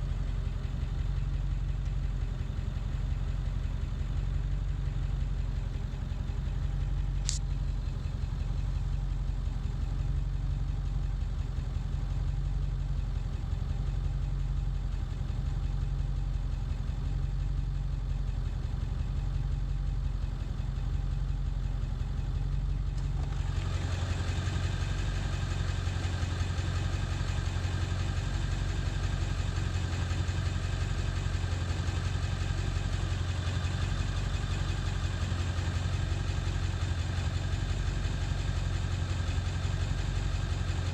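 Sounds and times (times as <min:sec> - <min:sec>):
diesel engine idling rough: 0:00.0 - 0:40.9
sharp click: 0:07.2 - 0:07.5.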